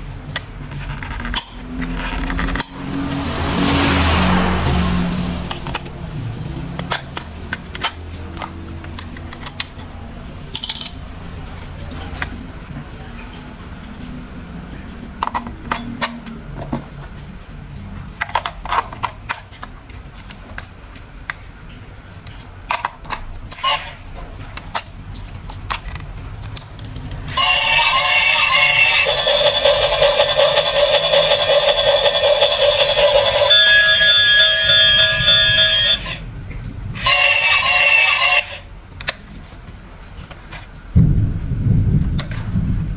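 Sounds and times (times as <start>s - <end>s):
music: 27.4s - 36.2s.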